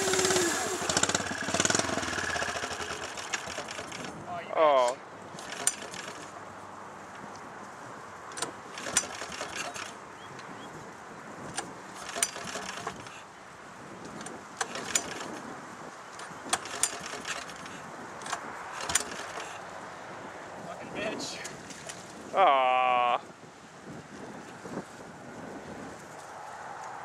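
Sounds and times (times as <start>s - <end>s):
distant lawn tractor engine: 0.0s - 4.2s, 5.4s - 6.4s, 8.4s - 10.0s, 11.9s - 13.2s, 16.5s - 19.6s
sharp clicks and knocks: 14.1s - 15.4s, 16.2s - 19.6s.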